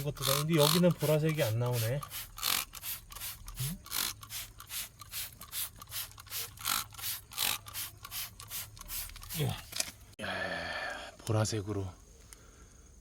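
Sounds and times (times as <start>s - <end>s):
spray bottle squirting: 0.0s - 10.0s.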